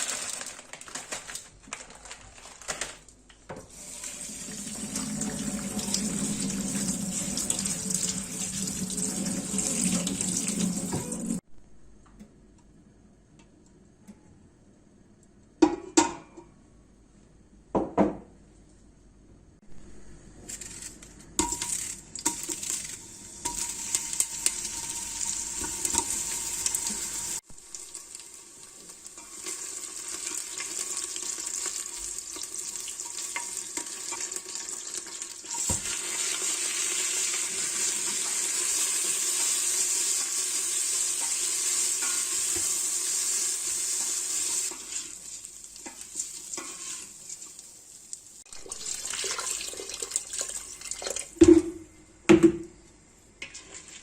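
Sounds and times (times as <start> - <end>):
food sizzling in a frying pan: 3.7 - 11.4, 21.4 - 50.9
sharp kitchen knocks: 17.7 - 18.3, 51.4 - 52.7.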